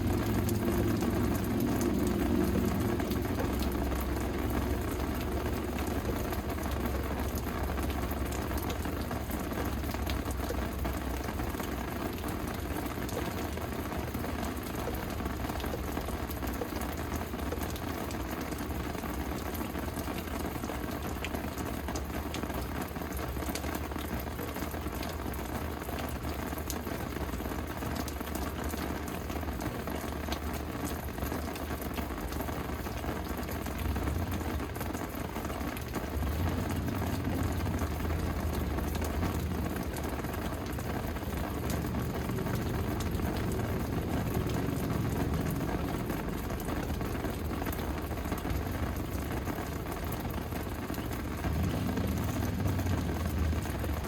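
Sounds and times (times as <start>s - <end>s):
low rumble: 0.0s - 8.7s, 36.0s - 54.0s
steady rain falling: 0.0s - 54.0s.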